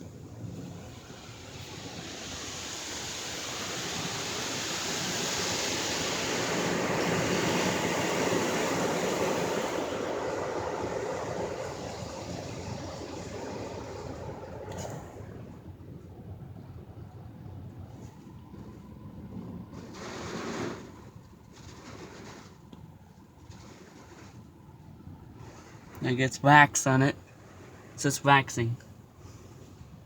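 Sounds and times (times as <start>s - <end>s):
rinse water spraying onto car: 0.9s - 14.4s.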